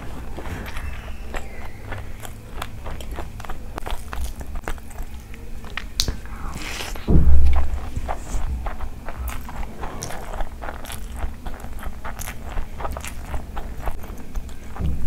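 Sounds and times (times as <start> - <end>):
wet chewing and lip-smacking: 0.0 - 15.0
loud low thump: 6.1 - 9.3.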